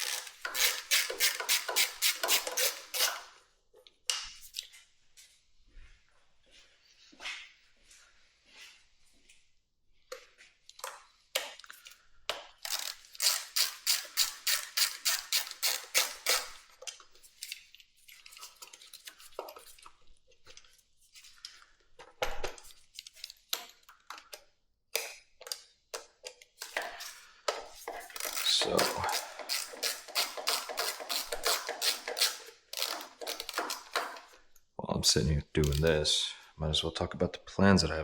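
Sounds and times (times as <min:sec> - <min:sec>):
hand tools clicking and knocking: 0:00.0 - 0:03.3, 0:12.3 - 0:17.6, 0:23.1 - 0:34.4.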